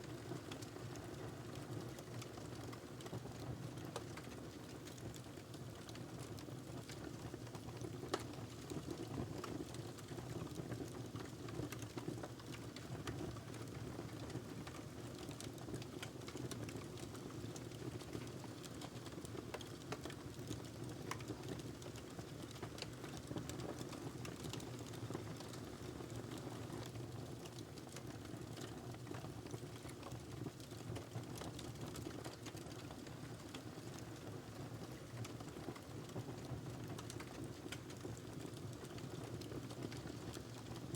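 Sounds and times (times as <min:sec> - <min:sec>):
wood fire crackling: 0:14.7 - 0:26.4, 0:36.8 - 0:40.8.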